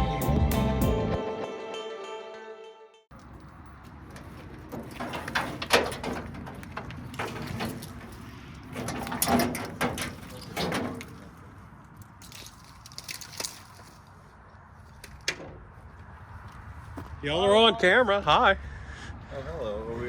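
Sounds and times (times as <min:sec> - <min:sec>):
knocks and scrapes of work: 0:03.1 - 0:17.2.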